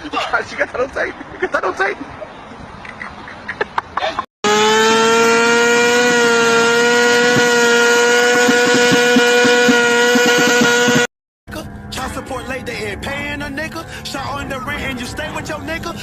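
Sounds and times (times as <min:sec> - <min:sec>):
motorcycle engine at high revs: 0:04.4 - 0:11.1.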